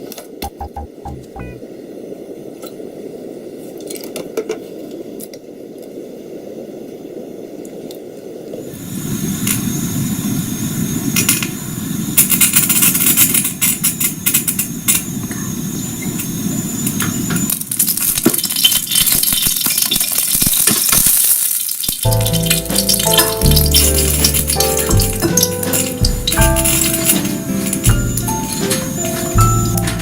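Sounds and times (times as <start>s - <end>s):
music: 0.6s - 1.6s, 22.0s - 30.0s
utensils clinking against cookware: 22.1s - 30.0s.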